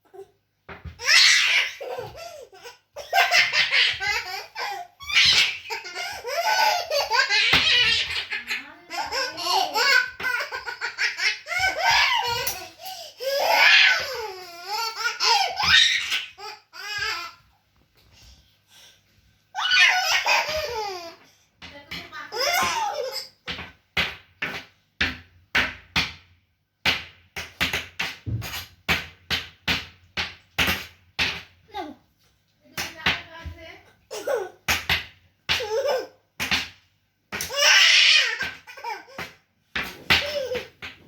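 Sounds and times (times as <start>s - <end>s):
small child laughing: 1.0s - 17.4s, 19.6s - 21.2s, 34.1s - 34.6s, 35.6s - 36.2s.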